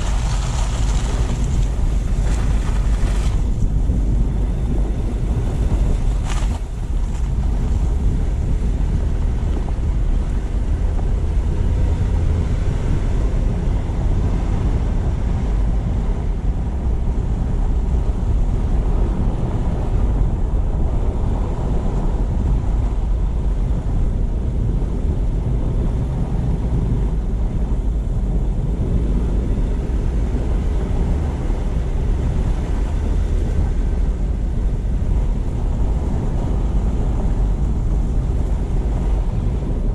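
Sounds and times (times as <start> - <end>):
road and tyre noise: 0.0 - 39.9
wind buffeting microphone: 0.0 - 39.9.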